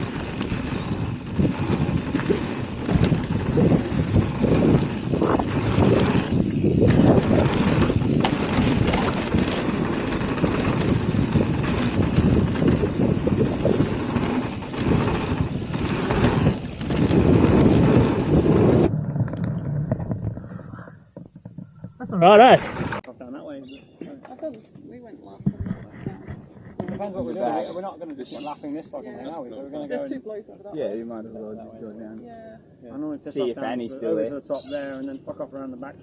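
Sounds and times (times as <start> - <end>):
bike rattling on rough trail: 0.0 - 20.7, 21.3 - 23.0
wind buffeting the microphone: 0.0 - 23.0.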